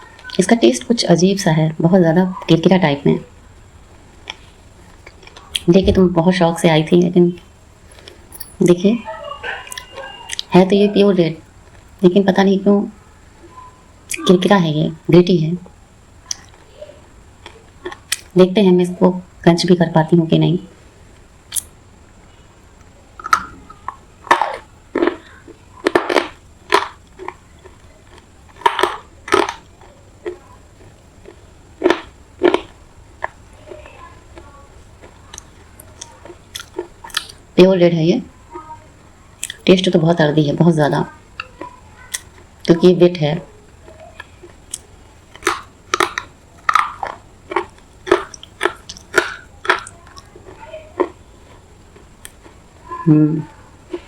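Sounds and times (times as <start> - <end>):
clay crunching in mouth: 23.2 - 33.8, 35.0 - 37.4, 44.2 - 50.3.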